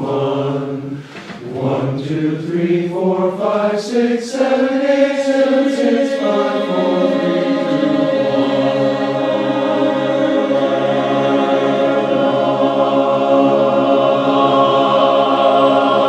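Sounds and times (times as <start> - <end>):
chorus singing in harmony: 0.0 - 16.0.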